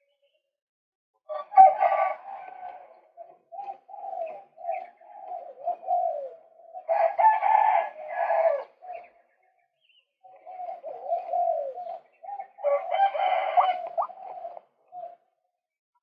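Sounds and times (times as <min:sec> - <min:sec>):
waterhen croaking calls: 0:10.6 - 0:15.2.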